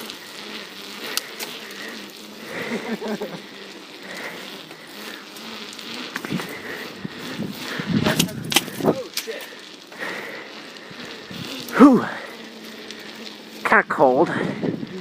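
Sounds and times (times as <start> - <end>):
bicycle tyres on rough ground: 0.0 - 15.0
bicycle parts rattling: 6.1 - 13.5
sharp clicks: 8.1 - 9.5.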